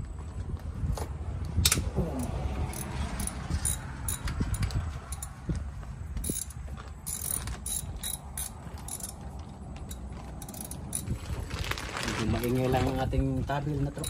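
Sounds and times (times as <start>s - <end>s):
steady low rumble: 0.0s - 14.0s
socket wrench ratchet clicking: 2.7s - 5.3s, 6.2s - 9.2s, 9.8s - 11.1s.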